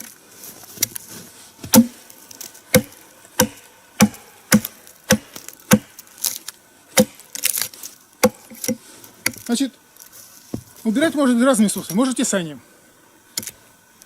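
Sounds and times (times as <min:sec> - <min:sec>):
axe chopping a log: 0:01.6 - 0:02.0, 0:02.7 - 0:06.0, 0:06.9 - 0:09.4.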